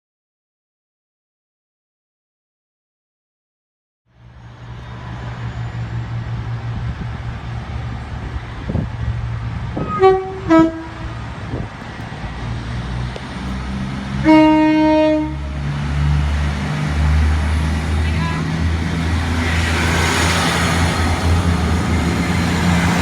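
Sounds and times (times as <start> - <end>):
train engine rumble: 4.1 - 23.0
two-tone train horn: 9.8 - 11.2, 14.2 - 15.6.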